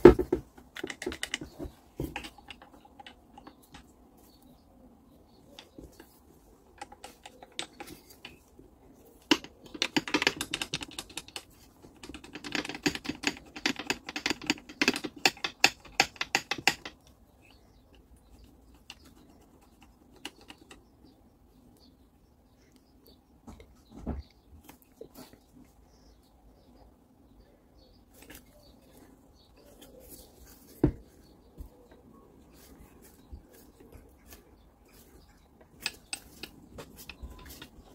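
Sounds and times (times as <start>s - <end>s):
hand tools and metal parts rattling: 0.0s - 4.4s, 5.3s - 20.8s, 28.1s - 37.9s.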